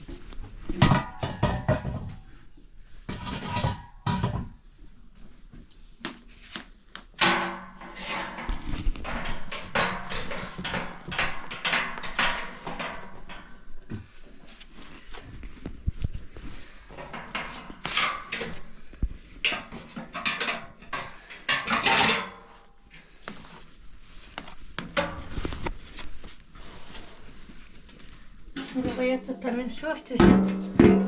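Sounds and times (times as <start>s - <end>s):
household objects clattering: 0.6s - 2.3s, 3.1s - 4.6s, 7.1s - 23.2s, 28.1s - 31.0s.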